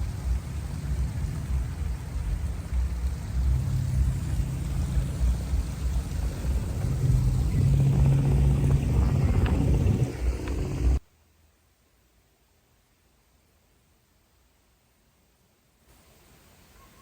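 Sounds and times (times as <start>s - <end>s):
loud unsteady low rumble: 0.0s - 11.0s
hiss of noise: 0.0s - 11.1s, 15.8s - 17.0s.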